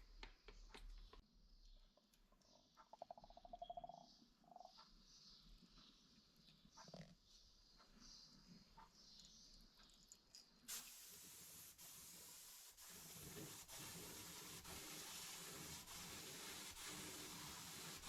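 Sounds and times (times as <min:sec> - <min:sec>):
spray paint hissing: 0:10.7 - 0:18.0.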